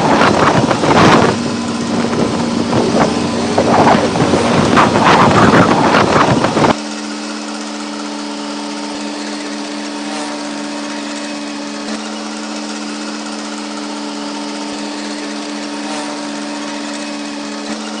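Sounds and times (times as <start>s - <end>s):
loud rushing noise: 0.0s - 6.8s
steady mechanical drone: 0.0s - 18.0s.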